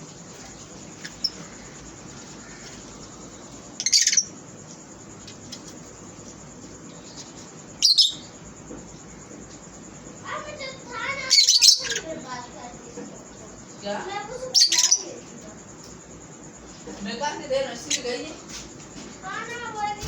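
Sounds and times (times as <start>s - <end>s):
faint bird chirps: 0.4s - 4.4s, 7.0s - 8.4s, 9.0s - 12.4s, 13.7s - 16.0s
lovebirds squawking: 3.8s - 4.3s, 11.0s - 12.3s, 14.4s - 15.2s.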